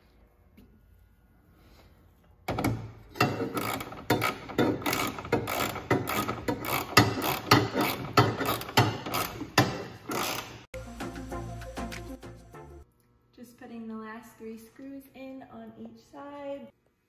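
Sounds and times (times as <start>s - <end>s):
socket ratchet clicking: 3.6s - 10.6s.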